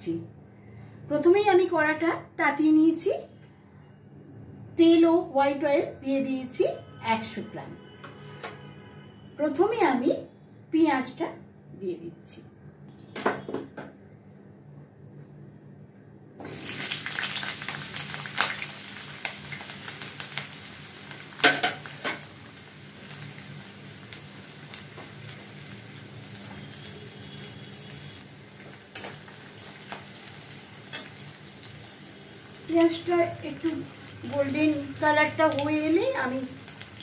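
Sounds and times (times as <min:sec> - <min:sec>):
onions sizzling in hot oil: 0:16.4 - 0:37.0.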